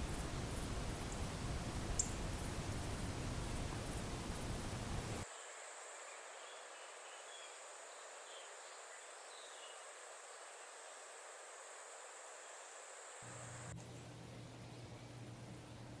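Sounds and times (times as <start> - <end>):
loud steady noise: 0.0 - 5.2
steady high hiss: 0.0 - 5.2.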